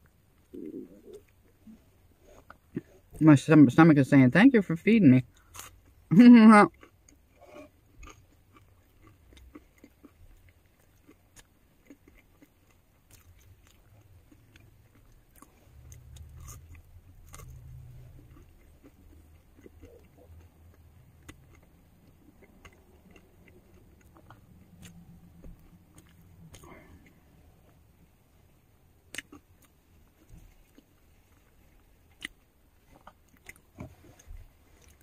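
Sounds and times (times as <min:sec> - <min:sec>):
chewing and biting food: 0:06.7 - 0:28.0, 0:28.8 - 0:35.0.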